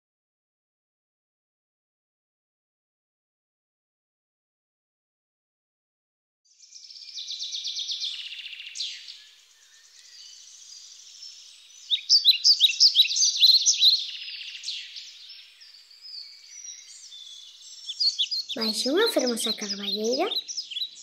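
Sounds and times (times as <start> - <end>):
songbirds singing: 6.5 - 21.0.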